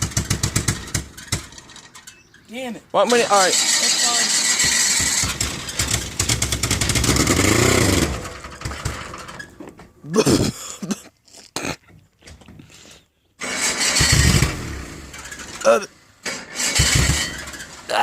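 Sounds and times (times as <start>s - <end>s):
truck engine running: 0.0s - 2.4s, 3.0s - 9.5s
truck engine cranking: 0.0s - 9.7s, 13.4s - 18.0s.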